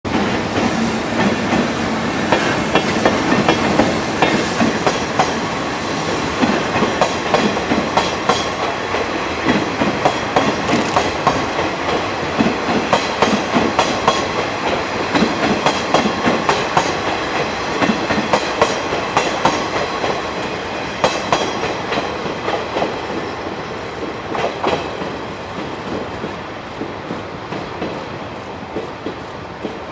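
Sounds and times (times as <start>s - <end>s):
train wheels clacking over rail joints: 6.4s - 20.3s.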